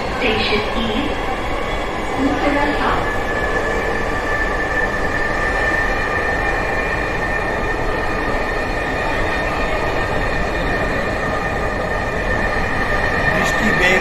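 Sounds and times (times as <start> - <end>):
train rumble inside carriage: 0.0 - 14.0
high whine: 13.2 - 14.0.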